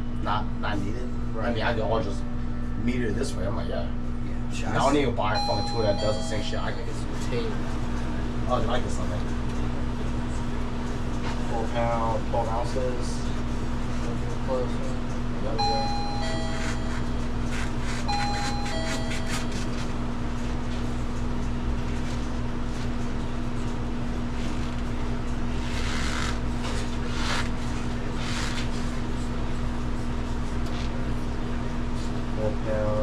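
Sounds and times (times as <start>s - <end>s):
steady mechanical hum: 0.0s - 33.0s
two-note falling electronic chime: 15.6s - 17.1s, 18.1s - 19.8s.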